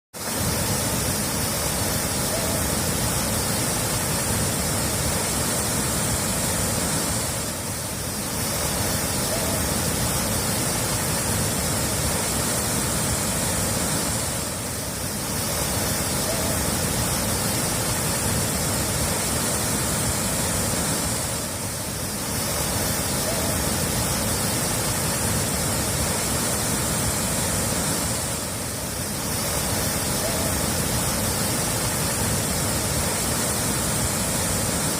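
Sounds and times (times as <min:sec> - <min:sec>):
running water: 0:00.2 - 0:34.9.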